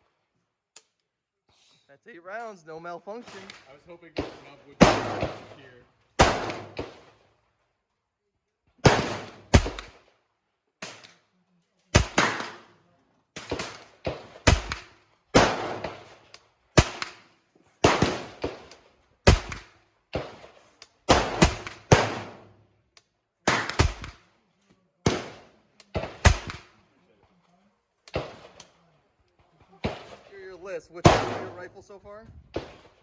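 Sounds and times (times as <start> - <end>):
gunshots with echo: 3.2 - 7.2, 8.8 - 10.0, 13.4 - 16.2, 17.8 - 22.5, 31.0 - 31.8.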